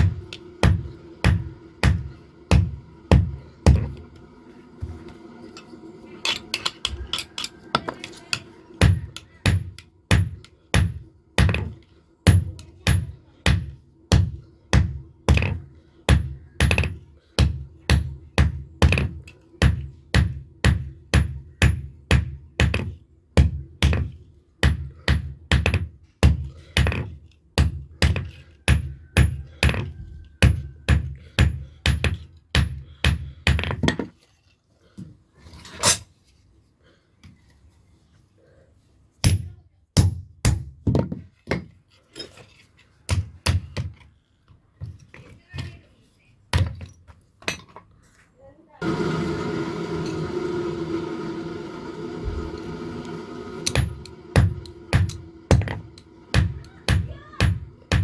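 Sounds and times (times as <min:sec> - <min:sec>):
hammer beating metal blade: 0:00.0 - 0:03.9, 0:53.6 - 0:58.0.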